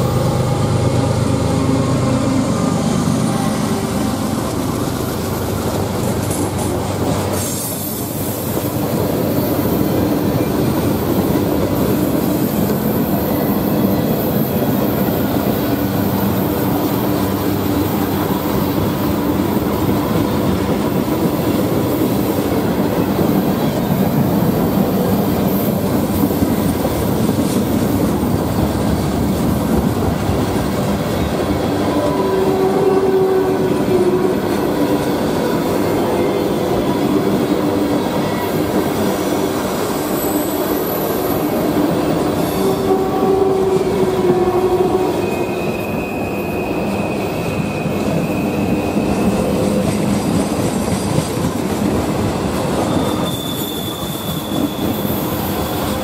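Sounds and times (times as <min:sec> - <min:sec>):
train wheels rumbling on rail: 0:00.0 - 0:56.0
wheels squealing: 0:34.7 - 0:49.8, 0:52.4 - 0:56.0.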